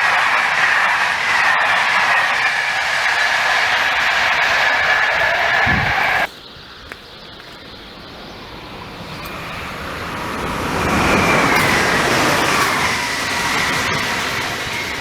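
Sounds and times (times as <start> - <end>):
train passing: 0.0 - 15.0
whine dropping in pitch: 0.8 - 6.3.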